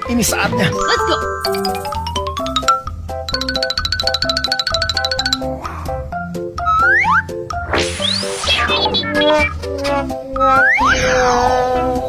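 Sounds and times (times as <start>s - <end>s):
playful background music: 0.0s - 12.0s
rising pitch glides: 0.8s - 2.9s.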